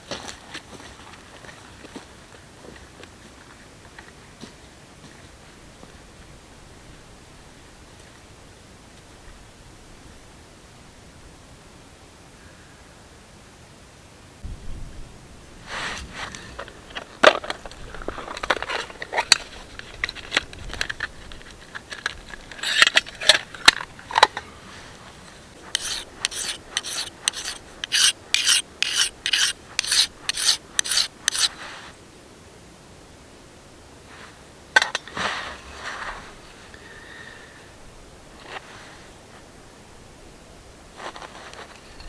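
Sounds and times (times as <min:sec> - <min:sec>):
hand tool scraping wood: 0:22.5 - 0:23.4, 0:25.6 - 0:31.6.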